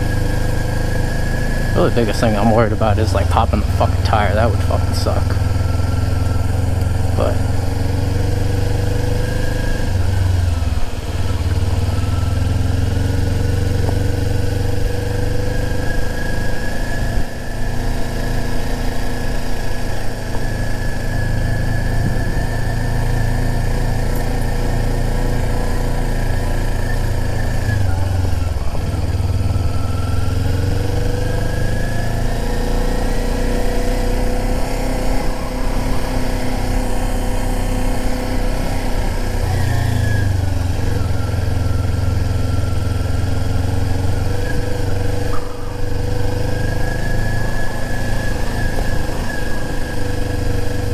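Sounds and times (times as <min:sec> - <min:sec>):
motorcycle engine running: 0:00.0 - 0:50.9
heavy low rumble: 0:01.6 - 0:08.6.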